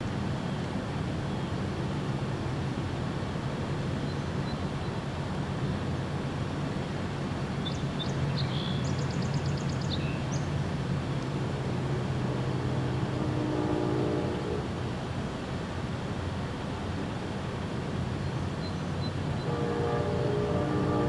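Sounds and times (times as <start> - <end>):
distant traffic rumble: 9.6 - 16.2, 19.1 - 21.0
faint steady hum: 19.4 - 21.0.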